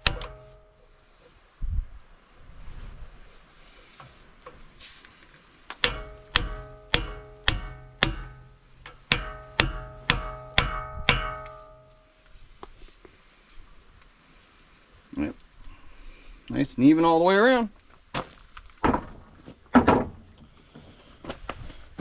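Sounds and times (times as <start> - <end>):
hammer ringing on metal: 0.0 - 0.8, 5.8 - 12.1.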